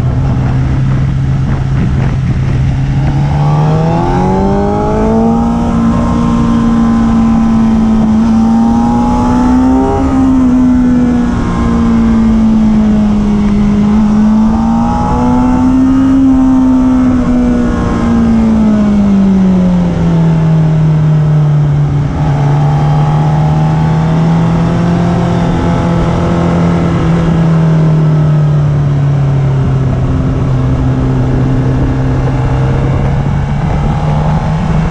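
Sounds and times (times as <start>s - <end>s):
motorcycle engine revving: 0.0s - 34.9s
wind rush: 0.0s - 34.9s.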